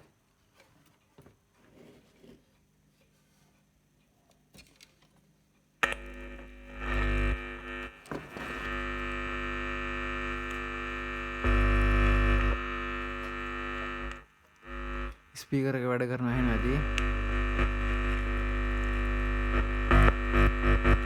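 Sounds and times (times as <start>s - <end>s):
loudspeaker distorted buzz: 5.8s - 21.0s.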